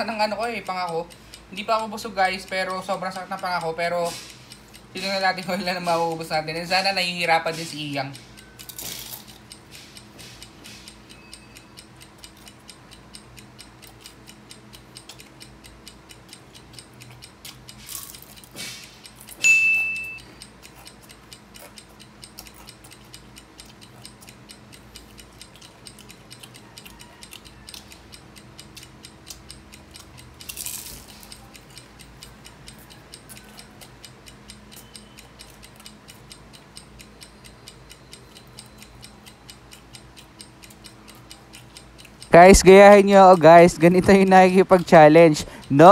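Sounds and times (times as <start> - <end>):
fast clock ticking: 0.0 - 45.9
bright chime: 19.4 - 20.2.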